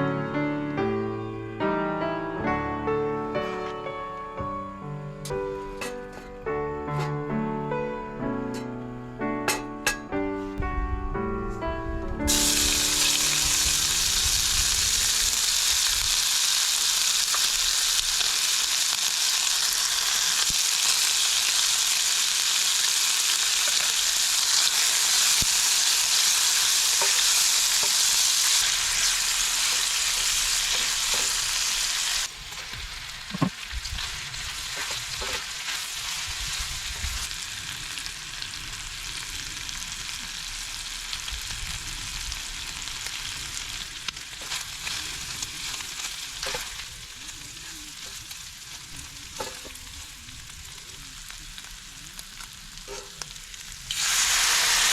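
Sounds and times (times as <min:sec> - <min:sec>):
food sizzling in hot oil: 0:12.3 - 0:54.9.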